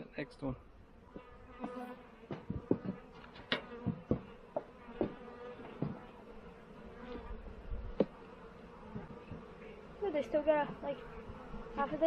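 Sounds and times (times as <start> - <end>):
bees buzzing: 0.1 - 12.0.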